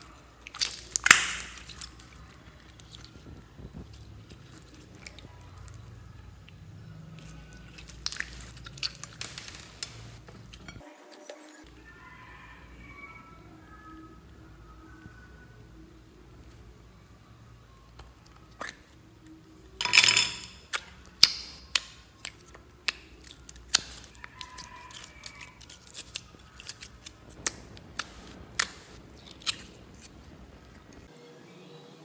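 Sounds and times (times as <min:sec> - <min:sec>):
slime clicking and popping: 0:00.4 - 0:03.1, 0:20.6 - 0:30.1.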